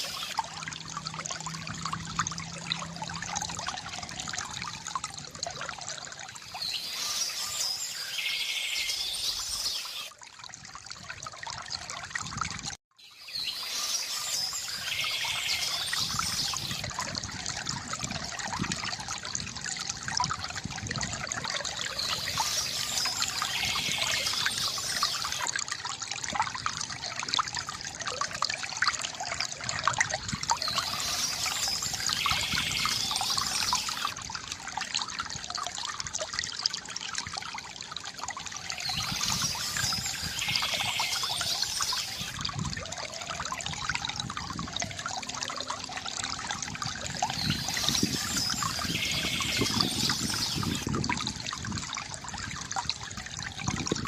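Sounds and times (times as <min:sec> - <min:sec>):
fountain water trickling: 0:00.0 - 0:54.0
birds chirping: 0:30.6 - 0:34.1, 0:47.3 - 0:50.8.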